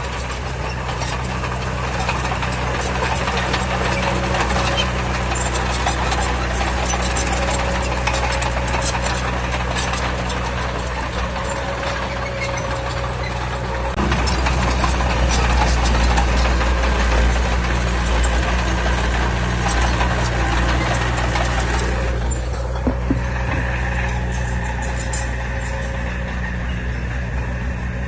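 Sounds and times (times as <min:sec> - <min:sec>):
diesel engine running: 0:00.0 - 0:28.0
short knocks: 0:22.7 - 0:23.7.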